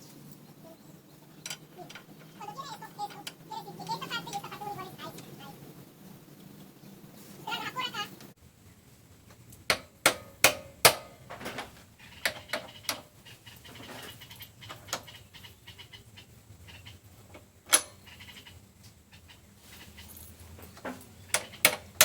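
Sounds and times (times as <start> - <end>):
sharp knocks and clicks: 1.4 - 3.4, 9.3 - 15.2, 20.7 - 22.0.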